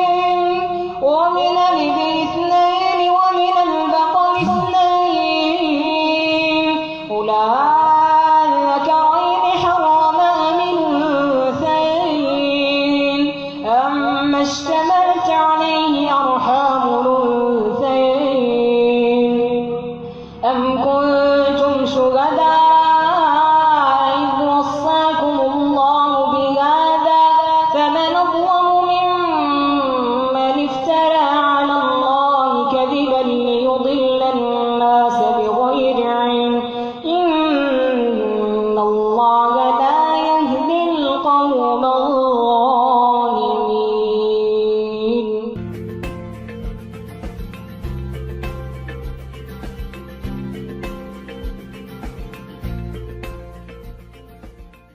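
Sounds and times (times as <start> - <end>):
boy chanting recitation: 0.0 - 45.6
child chanting melodically: 8.5 - 17.6.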